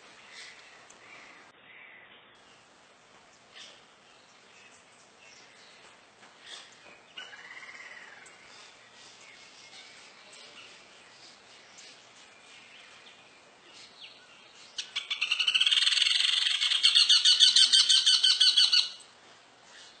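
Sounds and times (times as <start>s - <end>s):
woodpecker chattering call: 14.8s - 19.1s.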